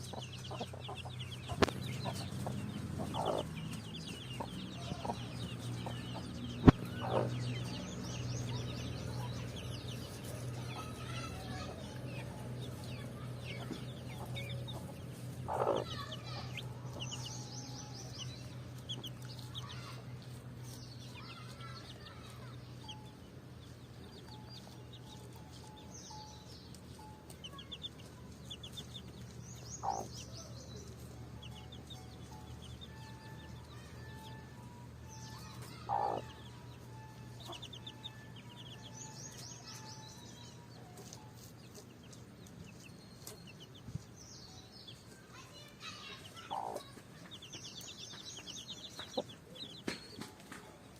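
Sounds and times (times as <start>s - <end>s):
hen clucking: 0.0s - 20.8s, 27.2s - 30.3s, 35.4s - 37.9s, 46.4s - 47.4s
chicks peeping: 0.0s - 50.9s.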